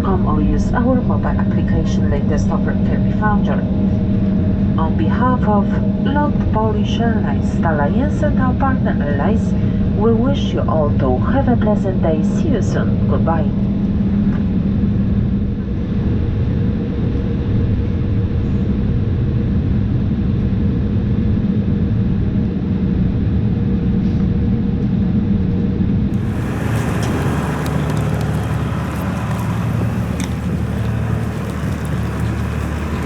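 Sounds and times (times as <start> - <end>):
airliner cabin rumble: 26.1 - 33.0
crackles and ticks: 26.1 - 33.0.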